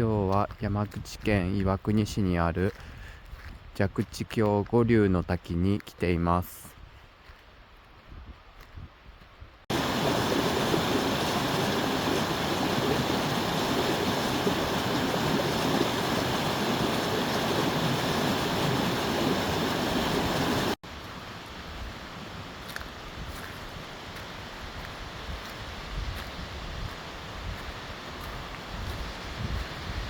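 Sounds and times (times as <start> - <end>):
water rushing: 9.7 - 22.7.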